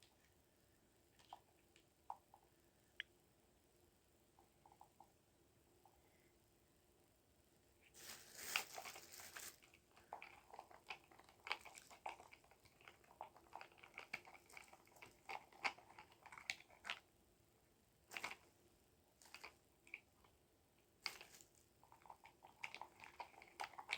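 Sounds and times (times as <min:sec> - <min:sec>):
crinkling and clicks of handling: 0:07.8 - 0:17.0, 0:18.1 - 0:18.5, 0:19.2 - 0:20.4, 0:21.0 - 0:23.9.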